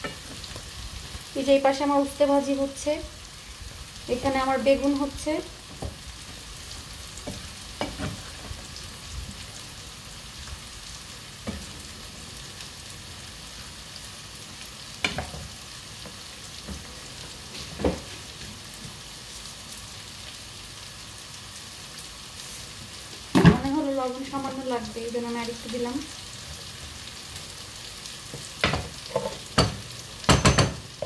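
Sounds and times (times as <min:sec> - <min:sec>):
bitter gourd sizzling in oil: 0:00.0 - 0:31.0
utensil knocking against pan: 0:28.6 - 0:30.8.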